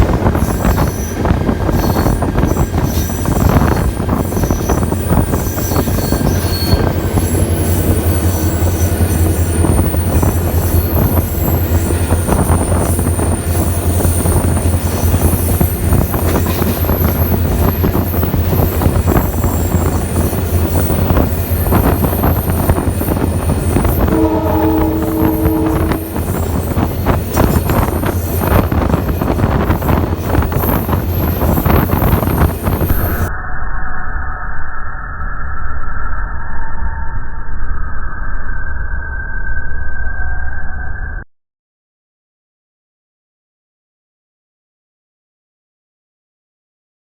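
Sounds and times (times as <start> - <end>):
train coaches rumbling past: 0.0 - 33.3
high-pitched wheel squeal: 0.4 - 41.2.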